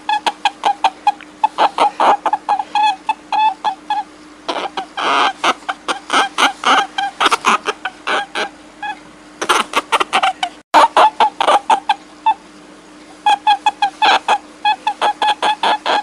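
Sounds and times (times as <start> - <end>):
short sharp animal calls: 0.0 - 12.4
faint steady hum: 0.0 - 16.0.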